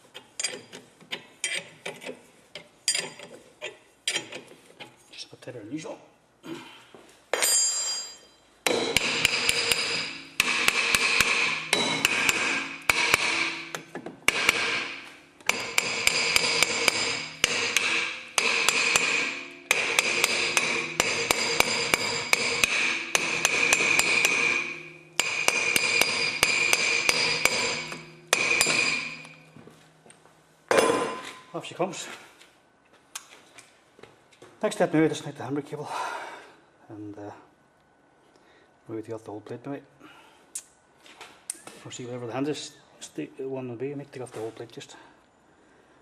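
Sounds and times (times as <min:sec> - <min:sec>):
hammer striking ringing metal: 0:07.4 - 0:29.6, 0:30.7 - 0:31.5.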